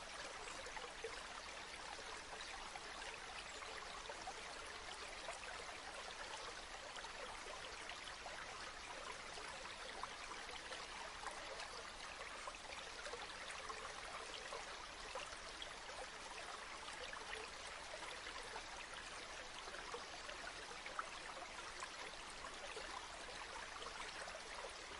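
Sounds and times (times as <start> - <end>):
river water flowing: 0.0 - 24.9.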